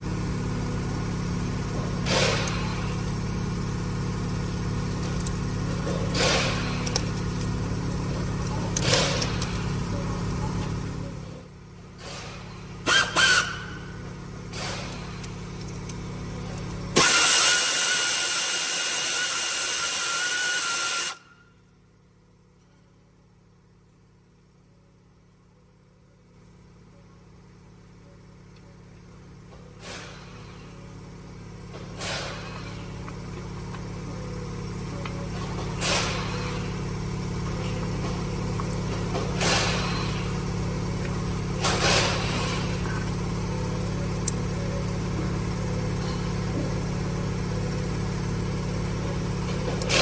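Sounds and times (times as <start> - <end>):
loud hissing with whine: 17.0 - 21.2.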